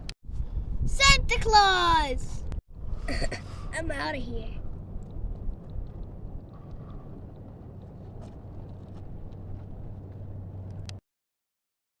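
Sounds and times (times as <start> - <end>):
low rumbling background noise: 1.8 - 11.0.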